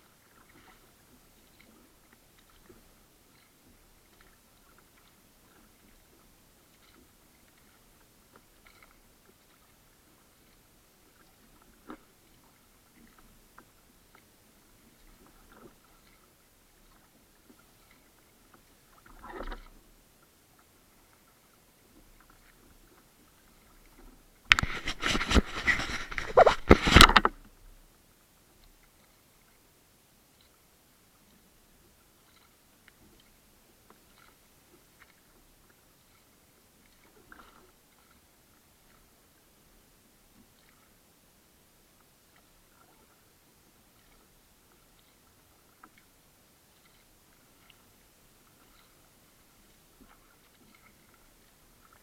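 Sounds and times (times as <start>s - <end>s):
water sounds: 0.0s - 52.0s
kayak knocking and rubbing: 24.5s - 27.4s.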